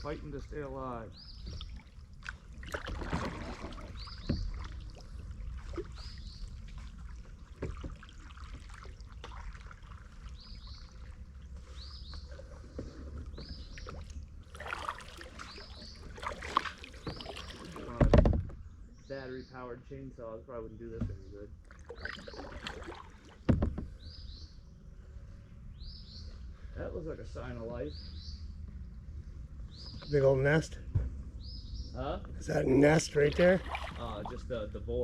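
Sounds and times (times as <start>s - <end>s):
water trickling: 0.0s - 18.0s, 21.6s - 23.5s, 32.4s - 34.8s
paddle knocking plastic hull: 1.4s - 9.7s, 12.8s - 18.6s, 21.0s - 24.0s.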